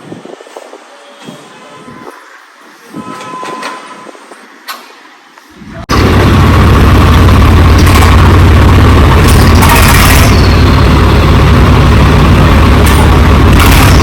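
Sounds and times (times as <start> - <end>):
tractor diesel engine running: 5.9 - 14.0.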